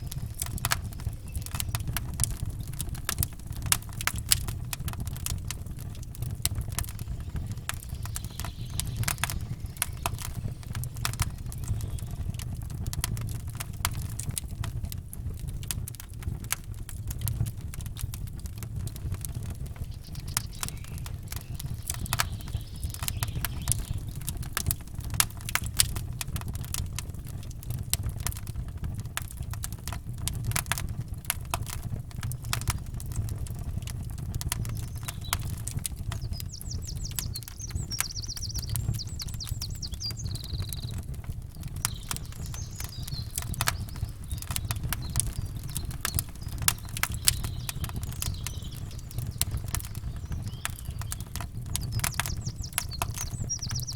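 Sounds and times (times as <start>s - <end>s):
faint bird chirps: 0.0s - 2.3s, 6.9s - 12.4s, 19.8s - 24.4s, 34.6s - 53.9s
campfire crackling and popping: 0.0s - 53.9s
low even rumble: 31.8s - 53.9s.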